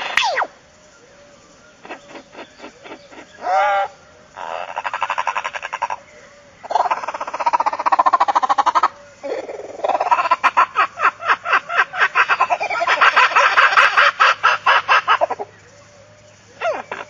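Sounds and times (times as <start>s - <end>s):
animal calling in falling notes: 0.0s - 0.6s.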